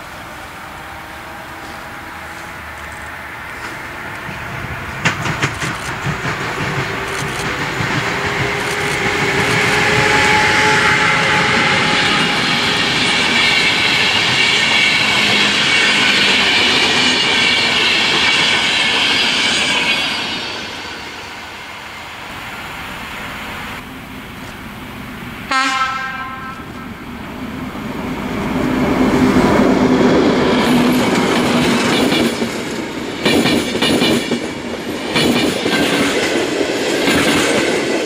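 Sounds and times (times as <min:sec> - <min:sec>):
train rolling noise: 0:00.0 - 0:38.0
train wheel clacks: 0:01.6 - 0:21.2, 0:28.8 - 0:38.0.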